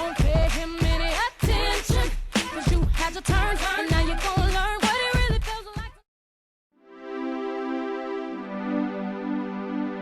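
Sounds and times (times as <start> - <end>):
pop song with singing: 0.0 - 6.0
sustained held chords: 6.8 - 10.0.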